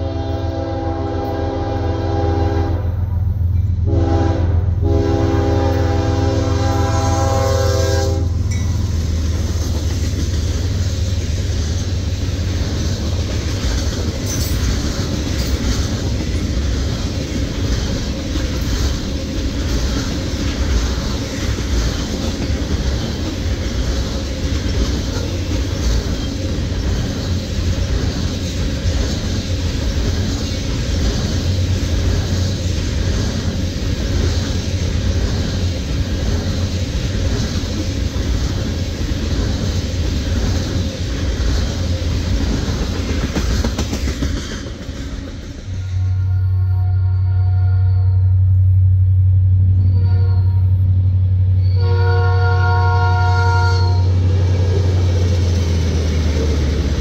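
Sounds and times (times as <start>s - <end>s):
locomotive air horn: 0.0s - 3.1s, 3.8s - 8.5s, 45.8s - 48.5s, 49.8s - 50.9s, 51.6s - 54.2s
train wheels clacking over rail joints: 8.5s - 46.2s.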